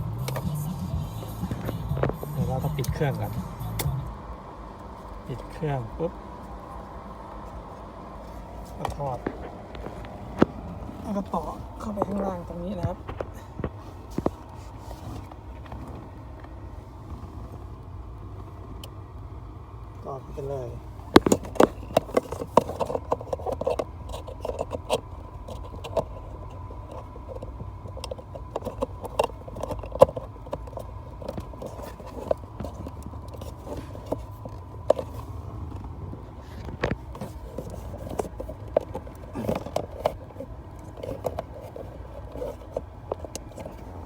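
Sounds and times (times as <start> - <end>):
steady low hum: 0.0 - 44.0
plug and cable clicks and scrapes: 8.2 - 16.0, 21.1 - 44.0.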